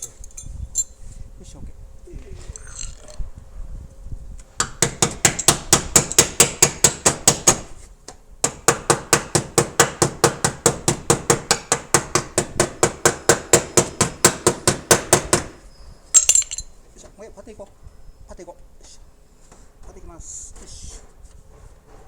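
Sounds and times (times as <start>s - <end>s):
hammer tapping sheet metal: 4.6s - 7.8s, 8.4s - 15.6s.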